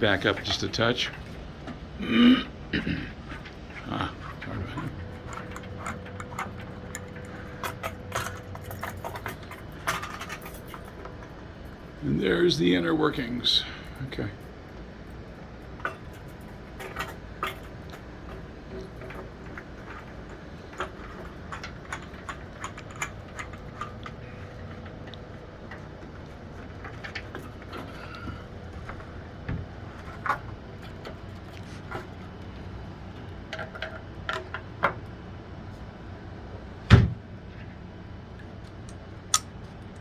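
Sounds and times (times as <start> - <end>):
plastic parts clicking and knocking: 15.8 - 35.0.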